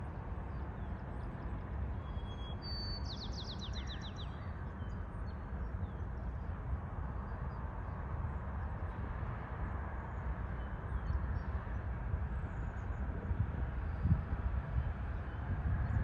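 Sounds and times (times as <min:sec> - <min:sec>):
small bird singing: 0:02.0 - 0:05.0
low outdoor rumble: 0:04.0 - 0:16.0.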